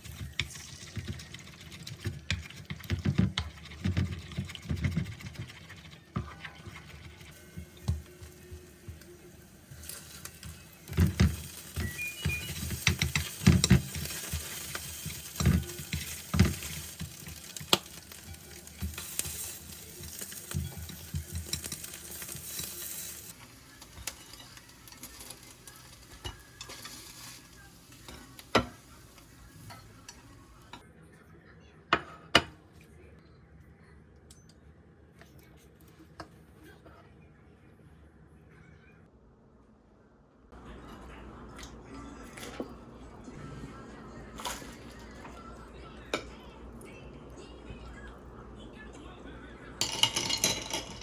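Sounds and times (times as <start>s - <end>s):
food sizzling in a frying pan: 7.3s - 30.7s
utensil clinking and scraping pan: 9.8s - 29.0s.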